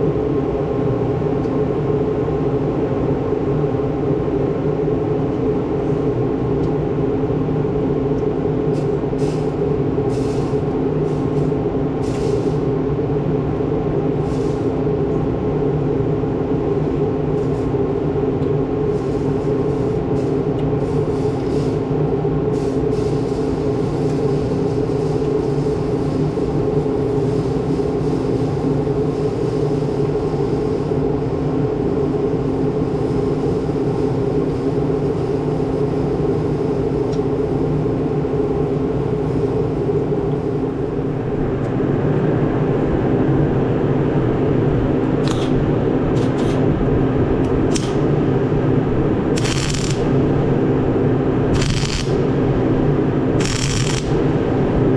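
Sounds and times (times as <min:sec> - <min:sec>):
engine running steadily: 0:00.1 - 0:54.9
sharp clicks: 0:47.7 - 0:48.0, 0:49.4 - 0:50.0, 0:51.6 - 0:52.2, 0:53.4 - 0:54.2.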